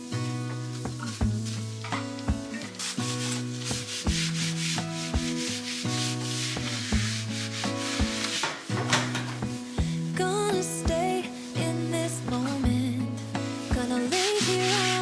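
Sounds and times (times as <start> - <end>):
background music with a beat: 0.0 - 15.0
scrubbing against a surface: 0.2 - 9.4, 13.7 - 15.0.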